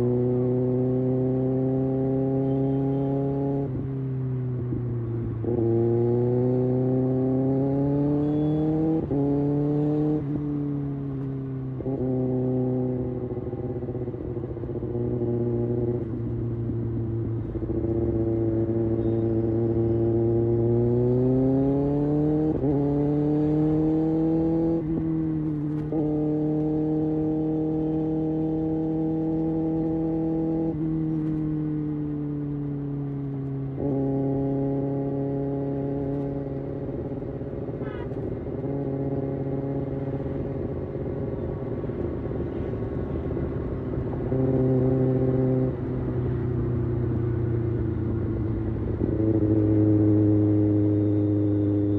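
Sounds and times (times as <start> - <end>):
motorcycle engine revving and upshifting: 0.0 - 51.9.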